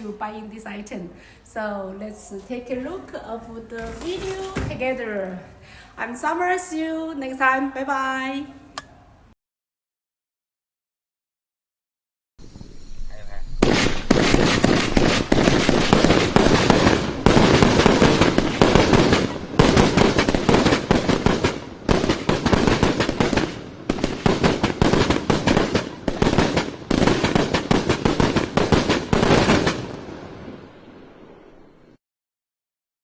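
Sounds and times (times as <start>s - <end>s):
fireworks bangs and crackling: 2.4s - 5.9s, 13.6s - 31.7s.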